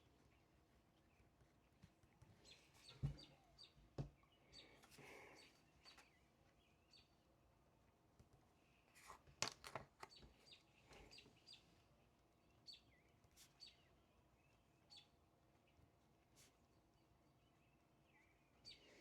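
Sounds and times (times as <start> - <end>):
faint high bird chirps: 2.2 - 7.2, 10.0 - 19.0.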